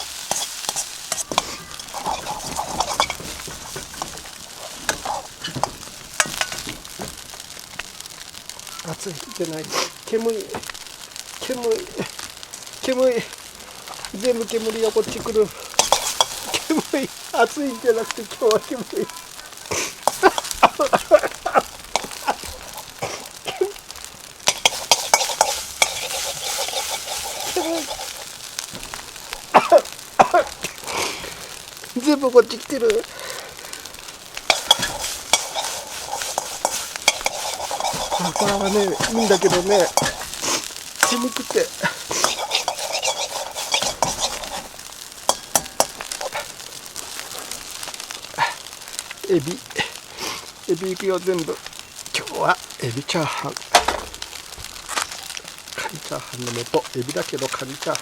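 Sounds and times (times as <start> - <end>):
utensil scraping a wok: 0.0 - 7.4, 13.4 - 31.7, 32.6 - 49.0
food sizzling: 0.0 - 58.0.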